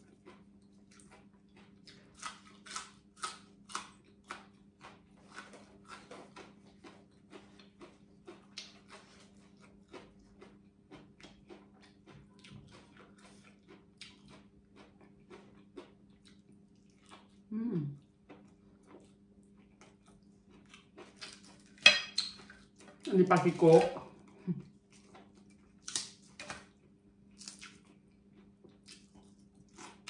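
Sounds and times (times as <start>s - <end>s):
faint low hum: 0.0s - 30.0s
person chewing crisp food: 0.0s - 30.0s.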